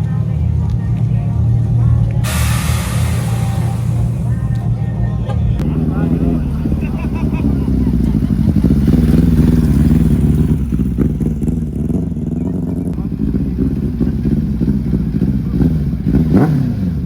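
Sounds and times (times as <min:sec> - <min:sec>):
background voices: 0:00.0 - 0:09.0
car engines running: 0:00.0 - 0:17.0.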